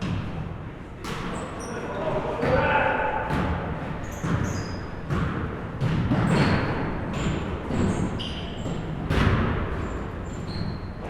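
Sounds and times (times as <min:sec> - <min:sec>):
basketballs bouncing on gym floor: 0:00.0 - 0:01.4, 0:02.4 - 0:11.0
sneakers squeaking on court: 0:03.4 - 0:11.0.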